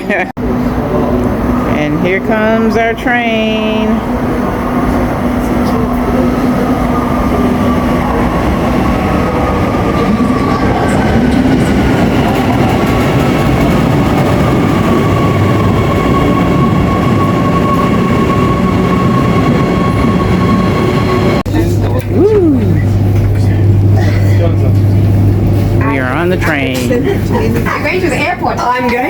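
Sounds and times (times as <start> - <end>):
train cars rumbling: 0.0 - 21.8, 22.5 - 29.0
train braking whine: 0.4 - 21.4.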